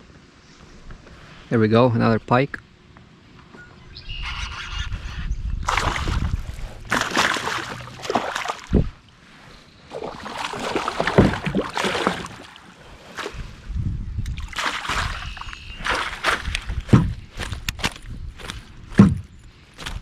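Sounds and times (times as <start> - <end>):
water splashing against kayak: 5.7 - 13.7, 14.3 - 19.2
dull knocks on hull: 10.2 - 12.5, 15.9 - 18.0, 18.9 - 20.0.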